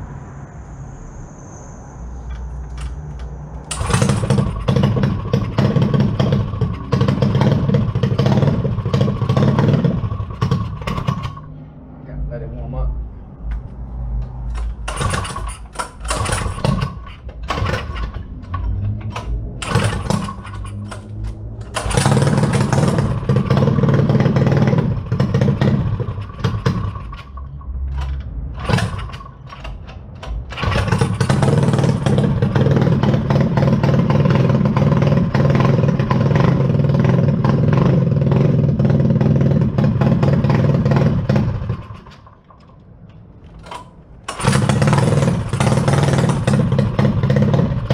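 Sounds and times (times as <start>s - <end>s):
small dirt bike engine revving: 3.7s - 11.5s, 14.8s - 27.4s, 28.0s - 29.8s, 30.5s - 42.3s, 43.6s - 47.9s.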